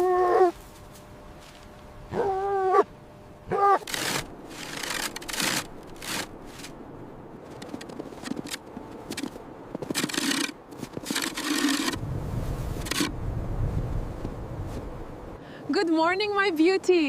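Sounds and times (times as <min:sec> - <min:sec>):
scraping and rubbing: 0:03.5 - 0:06.8, 0:07.4 - 0:12.0, 0:12.6 - 0:13.1.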